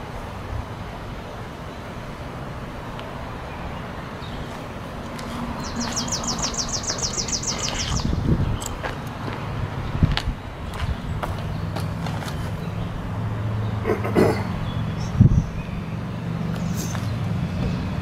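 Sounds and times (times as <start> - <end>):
bird singing a fast trill: 5.6 - 8.6, 14.6 - 16.0.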